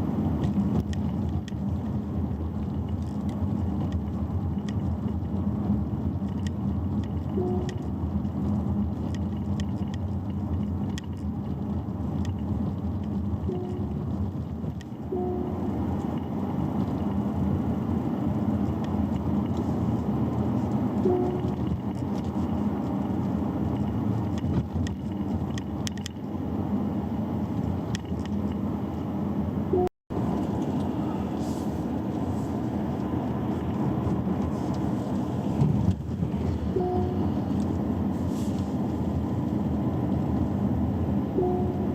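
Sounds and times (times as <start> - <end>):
road and engine rumble: 0.0 - 41.9
two-note electronic tone: 7.4 - 7.8, 13.5 - 13.9, 15.1 - 15.6, 36.8 - 37.4, 41.4 - 41.9
short tones: 41.4 - 41.9.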